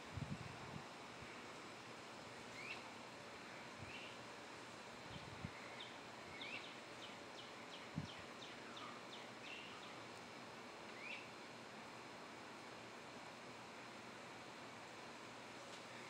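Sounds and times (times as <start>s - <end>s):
steady outdoor hiss: 0.0s - 16.0s
faint bird chirps: 2.5s - 4.2s, 5.1s - 10.0s, 10.9s - 11.4s.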